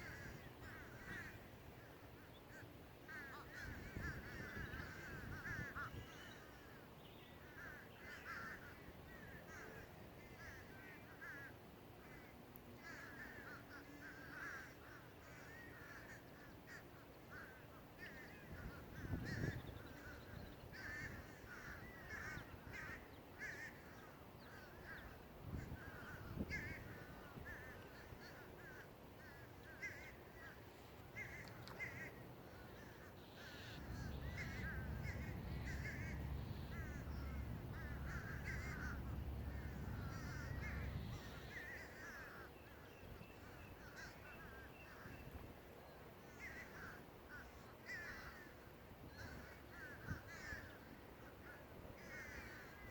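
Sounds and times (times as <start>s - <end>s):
crows cawing: 0.0s - 1.9s, 2.5s - 6.8s, 7.4s - 30.6s, 31.2s - 42.6s, 43.4s - 45.2s, 46.3s - 52.9s
steady low rumble: 32.8s - 42.1s.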